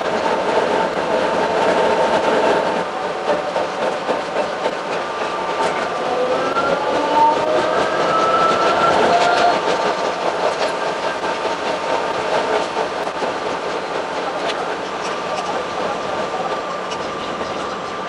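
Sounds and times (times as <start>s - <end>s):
railcar rattling rumble: 0.0s - 18.0s
whining tones sliding in pitch: 5.8s - 9.6s.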